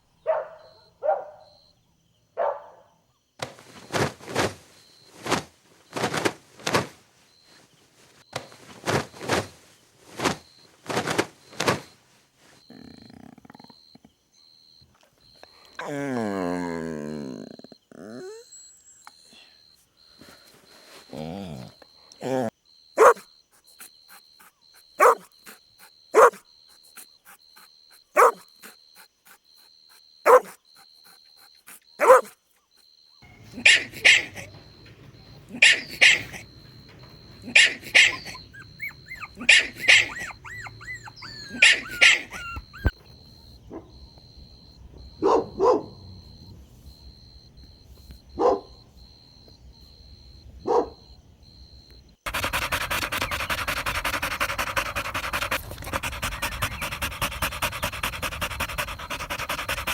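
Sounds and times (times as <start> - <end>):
dog barking: 0.2 - 1.6, 2.4 - 3.0, 22.3 - 32.4, 33.3 - 36.6, 37.3 - 43.0, 43.7 - 44.0, 45.1 - 46.3, 48.3 - 48.8, 50.6 - 51.1, 52.3 - 59.9.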